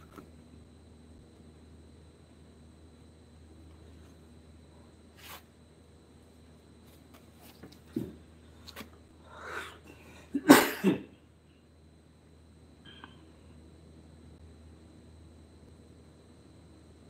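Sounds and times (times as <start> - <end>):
person sneezing loudly: 9.4 - 11.2.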